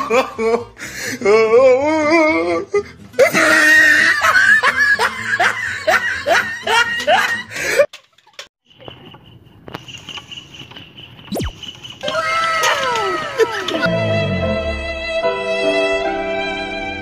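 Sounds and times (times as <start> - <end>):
person laughing: 0.0 - 1.5, 3.3 - 9.6, 12.8 - 13.9.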